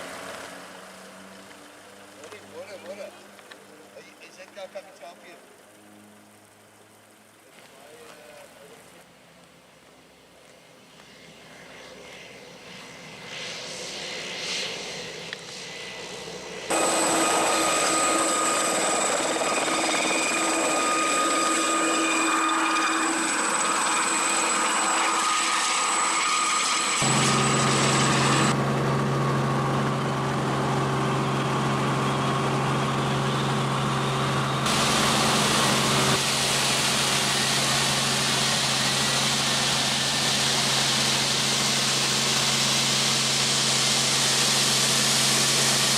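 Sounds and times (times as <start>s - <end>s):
helicopter whining: 13.9s - 45.9s.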